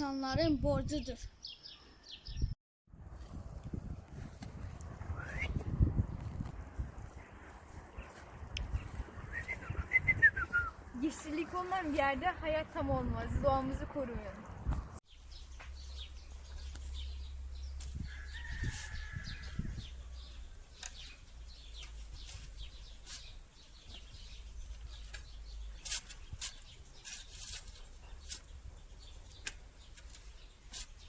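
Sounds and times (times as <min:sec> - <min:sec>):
wind rumble on microphone: 0:00.2 - 0:01.3, 0:02.2 - 0:11.0, 0:12.0 - 0:15.0, 0:16.9 - 0:20.6
birds chirping and clucking: 0:06.0 - 0:31.0.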